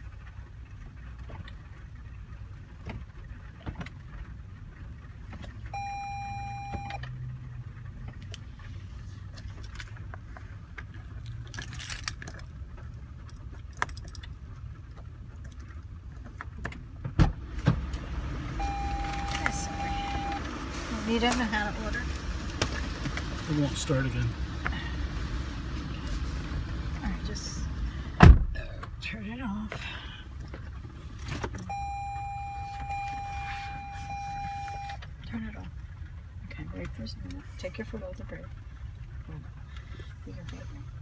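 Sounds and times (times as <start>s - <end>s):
low car interior rumble: 0.0s - 41.0s
car warning chime: 5.7s - 7.1s, 18.0s - 21.8s, 31.6s - 35.0s.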